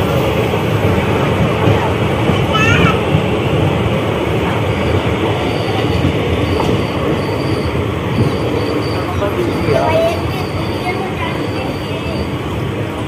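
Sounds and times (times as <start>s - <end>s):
train wheels rumbling and rattling: 0.0s - 13.0s
faint high squeal: 4.8s - 12.5s.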